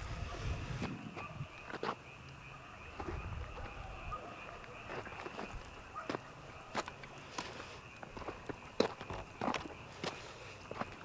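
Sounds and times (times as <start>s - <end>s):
frogs calling in chorus: 0.0s - 11.0s.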